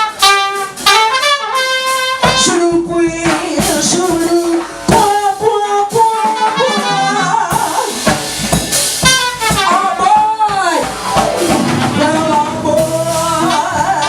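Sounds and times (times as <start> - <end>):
jazz band playing: 0.0 - 14.0
woman singing: 2.3 - 8.1, 11.8 - 14.0.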